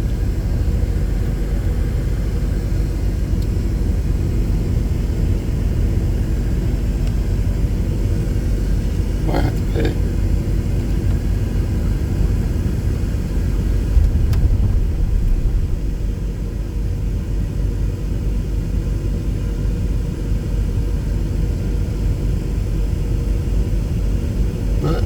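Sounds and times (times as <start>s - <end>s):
car cabin rumble: 8.4s - 16.7s.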